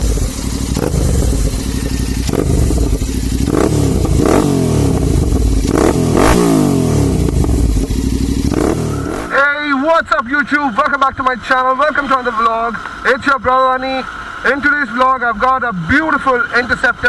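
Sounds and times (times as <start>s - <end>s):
motorcycle engine idling: 0.0s - 9.4s
engine throttle blips: 0.0s - 17.0s.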